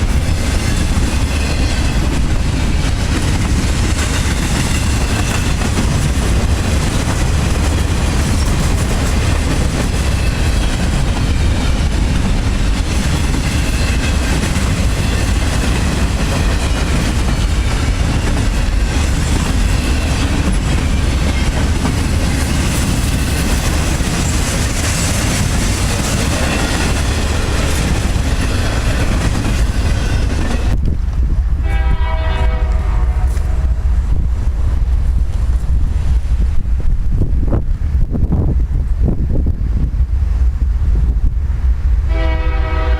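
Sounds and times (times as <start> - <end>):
train passing with rail noise: 0.0 - 42.9
wind on microphone: 0.0 - 42.9
train horn: 31.6 - 33.7, 42.1 - 42.9.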